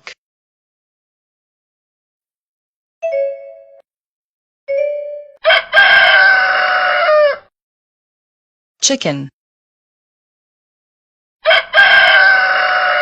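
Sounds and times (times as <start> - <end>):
rooster crowing: 5.4 - 7.5, 11.4 - 13.0.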